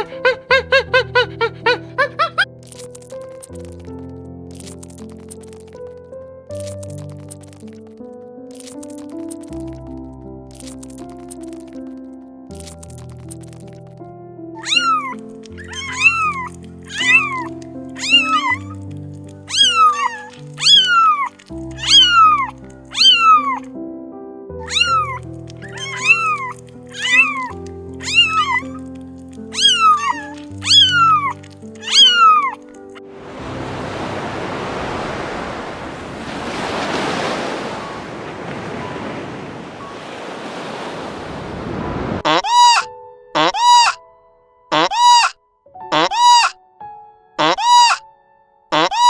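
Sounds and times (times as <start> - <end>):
background music with low notes: 0.0 - 34.9
cat meowing: 14.6 - 18.8, 19.5 - 23.6, 24.6 - 28.8, 29.5 - 32.6
waves rushing: 33.0 - 42.2.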